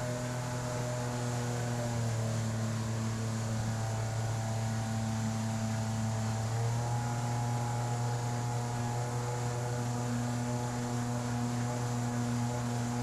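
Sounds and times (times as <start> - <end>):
jet boat motor running: 0.0 - 13.0.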